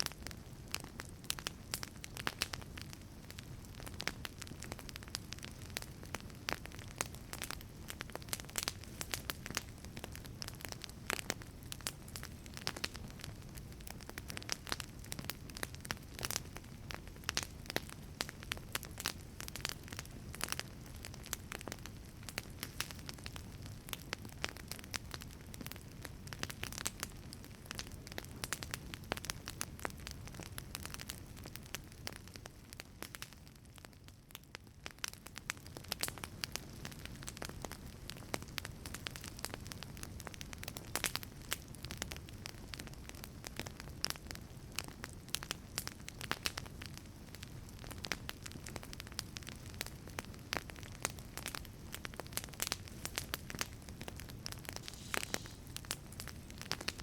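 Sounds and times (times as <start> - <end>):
wood fire crackling: 0.0 - 57.0
flame rushing: 49.6 - 57.0.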